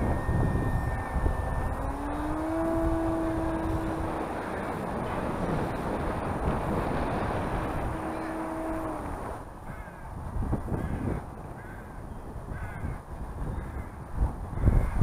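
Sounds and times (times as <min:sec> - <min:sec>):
steady hum: 0:00.0 - 0:15.0
wind rumble on microphone: 0:00.0 - 0:15.0
bird calling: 0:07.1 - 0:09.1.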